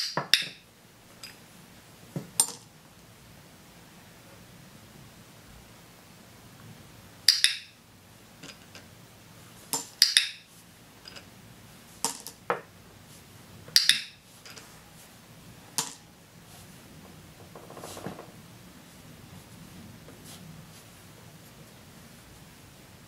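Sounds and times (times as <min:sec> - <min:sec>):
small objects clicking on a table: 0:07.3 - 0:07.7, 0:09.7 - 0:11.2, 0:13.7 - 0:14.6.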